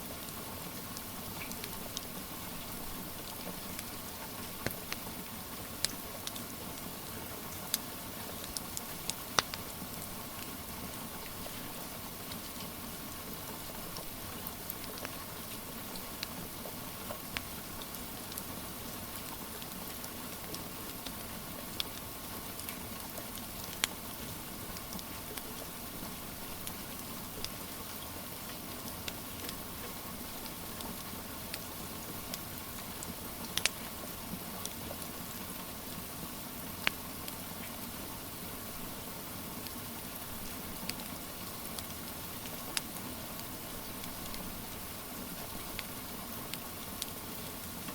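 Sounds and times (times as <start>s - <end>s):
rain hissing: 0.1s - 19.2s
wood fire crackling and popping: 1.0s - 5.1s, 8.4s - 10.5s, 13.7s - 15.2s, 19.3s - 25.7s, 30.2s - 34.0s, 39.6s - 47.2s.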